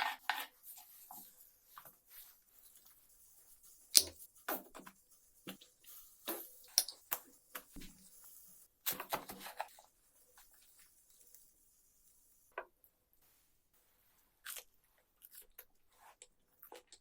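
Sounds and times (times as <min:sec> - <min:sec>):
utensils clicking and tapping: 0:03.8 - 0:11.5.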